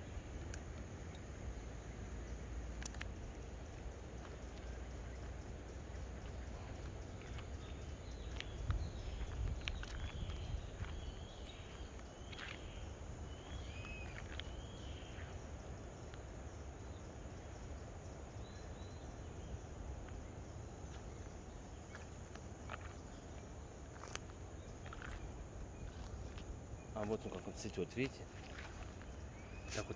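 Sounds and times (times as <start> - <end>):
steady low rumble: 0.0 - 27.4
faint clicks: 2.7 - 3.4.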